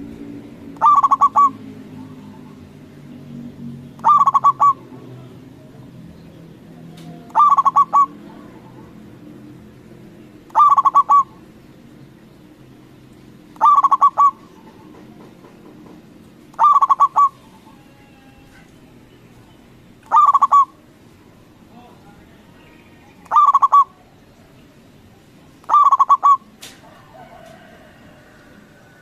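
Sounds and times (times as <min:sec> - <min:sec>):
dove cooing: 0:00.8 - 0:02.6, 0:04.0 - 0:05.0, 0:07.2 - 0:09.0, 0:10.5 - 0:11.4, 0:13.6 - 0:15.1, 0:16.5 - 0:18.7, 0:20.1 - 0:20.8, 0:23.2 - 0:24.0, 0:25.6 - 0:29.0.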